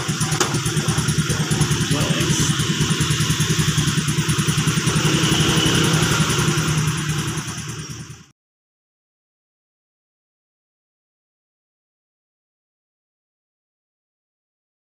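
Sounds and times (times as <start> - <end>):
motorcycle engine idling: 0.0 - 8.3.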